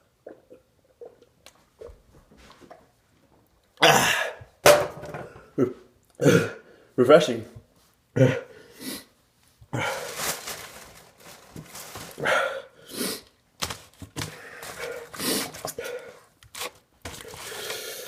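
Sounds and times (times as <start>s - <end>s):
person grunting while swallowing: 3.8s - 4.5s, 5.4s - 6.6s, 8.2s - 8.5s
heavy breaths: 12.1s - 13.4s, 14.2s - 16.3s.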